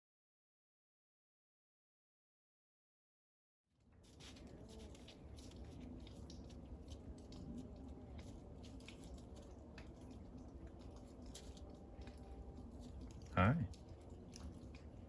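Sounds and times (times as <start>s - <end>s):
small clicks and ticks: 3.9s - 15.0s
low hum: 4.4s - 15.0s.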